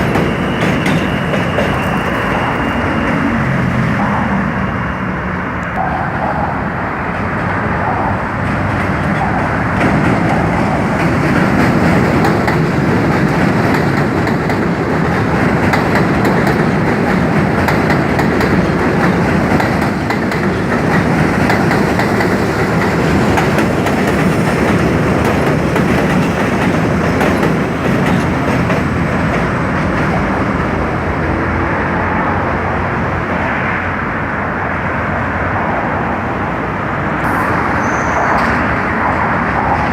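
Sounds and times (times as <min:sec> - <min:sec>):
subway train rumbling: 0:00.0 - 0:39.9
wheels clacking over rail joints: 0:06.5 - 0:30.8.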